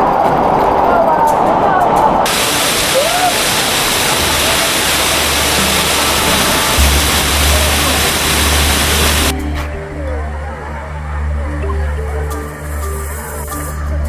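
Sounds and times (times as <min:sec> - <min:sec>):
waterfall rushing: 0:01.5 - 0:09.3
deep bass background music: 0:05.6 - 0:14.0.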